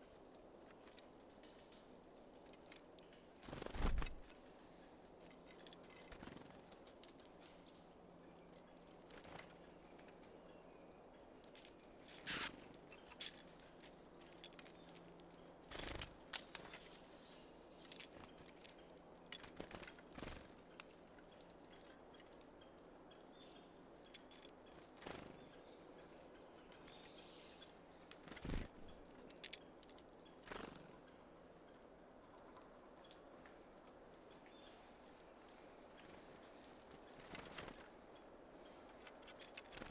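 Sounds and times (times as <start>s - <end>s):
birds tapping at seeds: 0.1s - 4.4s, 5.2s - 10.8s, 11.4s - 39.9s
bird wings fluttering: 3.4s - 4.4s, 5.5s - 7.2s, 15.7s - 17.0s, 19.4s - 20.6s, 24.3s - 25.5s, 28.1s - 29.0s, 30.4s - 31.0s, 35.9s - 37.9s, 39.2s - 39.9s.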